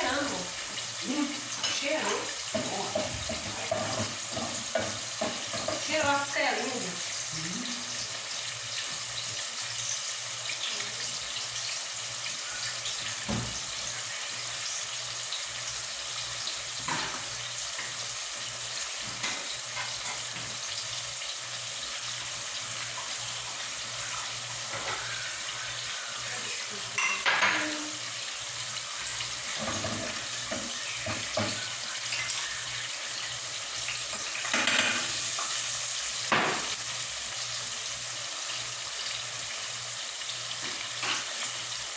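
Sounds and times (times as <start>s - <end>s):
ribs sizzling in a pan: 0.0s - 41.9s
pots and utensils clattering: 1.5s - 6.4s, 16.8s - 18.0s, 19.0s - 20.7s, 24.6s - 25.2s, 27.0s - 28.0s, 29.1s - 32.3s, 34.0s - 35.6s, 36.3s - 36.8s, 40.6s - 41.6s.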